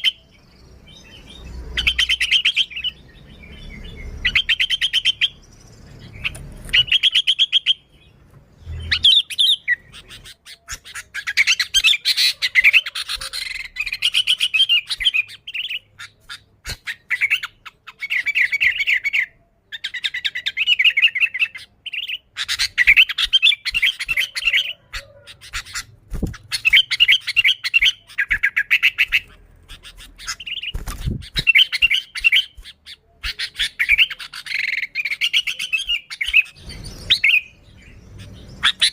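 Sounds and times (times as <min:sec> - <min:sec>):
bird singing chattering notes: 0:00.0 - 0:38.9.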